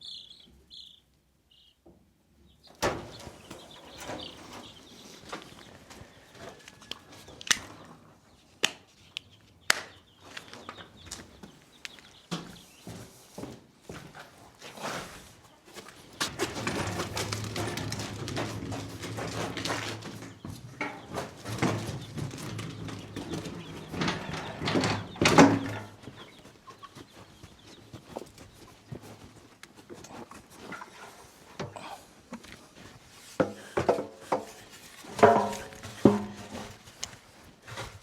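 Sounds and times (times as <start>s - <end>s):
chickens clucking: 2.5s - 8.5s, 14.0s - 37.9s
knocks and clatter: 2.7s - 5.7s, 16.2s - 26.4s, 33.4s - 37.1s.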